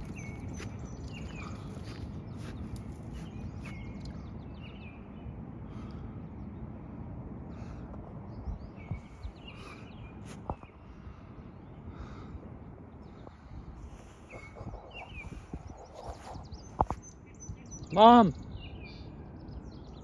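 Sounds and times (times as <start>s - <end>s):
small birds chirping: 0.0s - 6.9s, 7.5s - 20.0s
steady low rumble: 0.0s - 20.0s.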